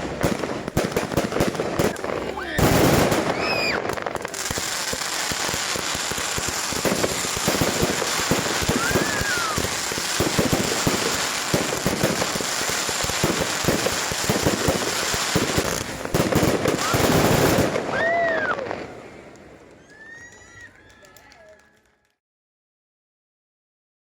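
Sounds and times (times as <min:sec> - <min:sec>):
fireworks crackling: 0:00.0 - 0:22.1
firework whistle: 0:01.8 - 0:15.9, 0:16.6 - 0:21.6.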